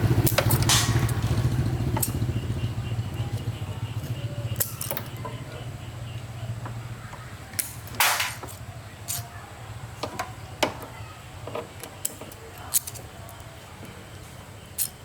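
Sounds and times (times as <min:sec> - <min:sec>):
tools and metal parts clicking: 0:00.2 - 0:01.3, 0:02.0 - 0:02.2, 0:03.3 - 0:09.4, 0:10.0 - 0:14.0, 0:14.7 - 0:15.0.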